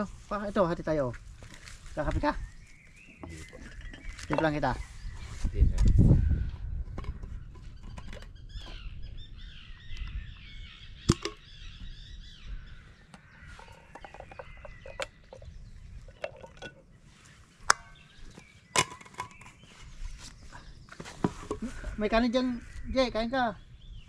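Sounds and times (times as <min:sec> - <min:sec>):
small bird singing: 0:02.0 - 0:16.2, 0:16.8 - 0:24.0
cups and thermos clinking: 0:03.1 - 0:04.8, 0:11.1 - 0:11.4, 0:13.5 - 0:16.9, 0:18.7 - 0:19.6.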